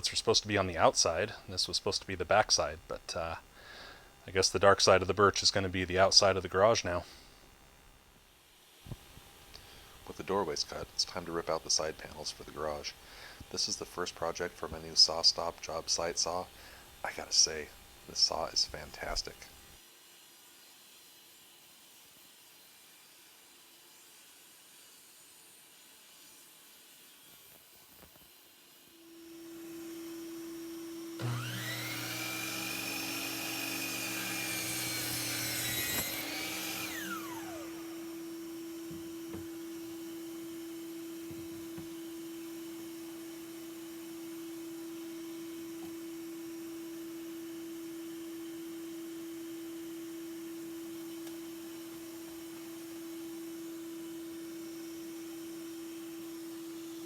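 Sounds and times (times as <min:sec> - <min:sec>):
table saw cutting wood: 0:28.7 - 0:57.0.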